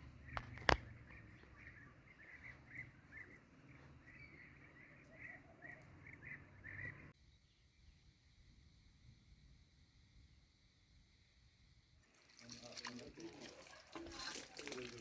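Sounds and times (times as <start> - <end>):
birds chirping: 0.0 - 7.7.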